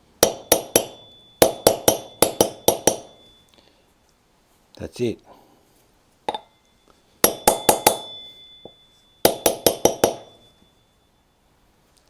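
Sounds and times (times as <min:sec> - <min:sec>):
hammer tapping on metal: 0:00.2 - 0:03.4, 0:06.3 - 0:06.6, 0:07.2 - 0:10.6.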